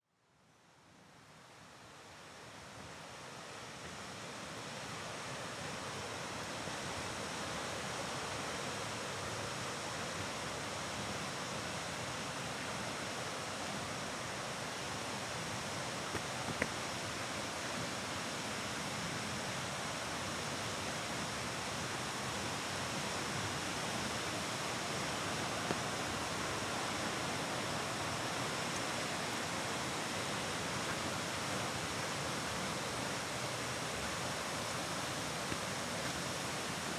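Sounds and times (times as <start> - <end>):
waterfall rushing: 16.2 - 36.9.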